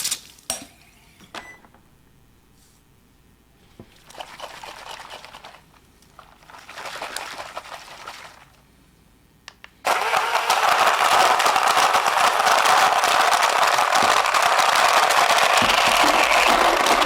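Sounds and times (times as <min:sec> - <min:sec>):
blender motor running: 0:09.9 - 0:17.0
short noisy stretches: 0:13.8 - 0:17.0.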